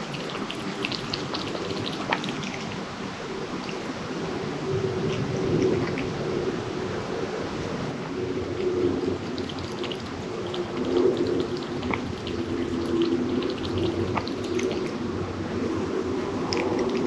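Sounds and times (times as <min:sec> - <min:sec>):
kittens eating wet food: 0:00.0 - 0:04.0, 0:08.2 - 0:17.0
steady low hum: 0:00.0 - 0:17.0.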